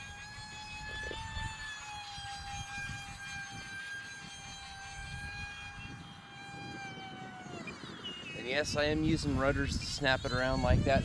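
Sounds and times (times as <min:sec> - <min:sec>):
electric fans whining: 0:00.0 - 0:11.0
wind rumble on microphone: 0:00.0 - 0:11.0.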